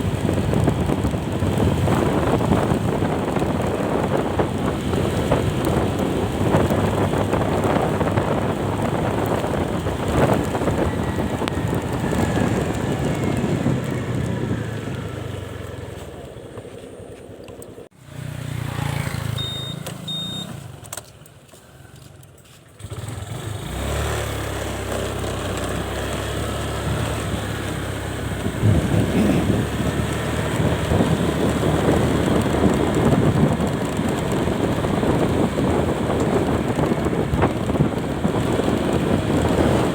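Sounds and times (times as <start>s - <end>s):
vehicle engine and road noise: 0.0s - 39.9s
short high beeps: 19.3s - 20.6s.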